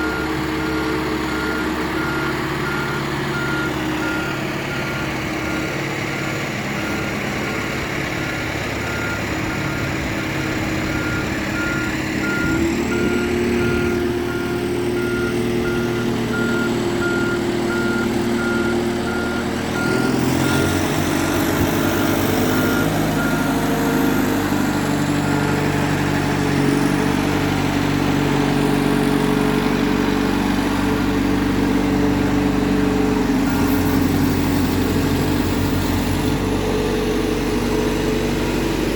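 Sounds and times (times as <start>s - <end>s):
reversing alarm beeping: 0.0s - 5.8s, 6.7s - 7.7s, 8.7s - 25.8s, 33.4s - 36.4s
heavy diesel engine running: 0.0s - 38.9s.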